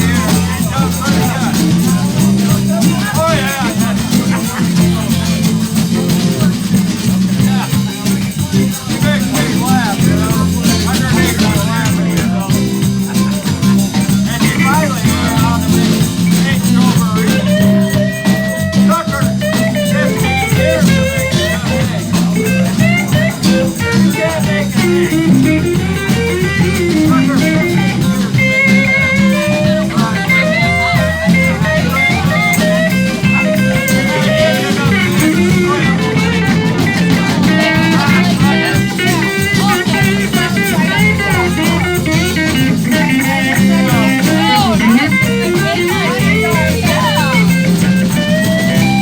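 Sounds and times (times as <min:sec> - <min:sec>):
electric guitar lead bending notes: 0:00.0 - 0:08.0, 0:08.6 - 0:49.0
blues band playing: 0:00.0 - 0:49.0.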